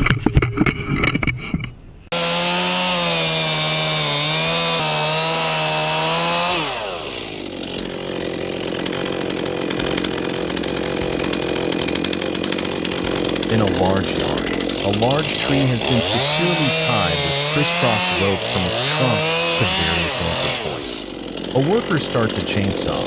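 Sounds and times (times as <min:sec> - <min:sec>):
chainsaw cutting wood: 0:02.1 - 0:23.0
chainsaw running at high revs: 0:02.1 - 0:23.0.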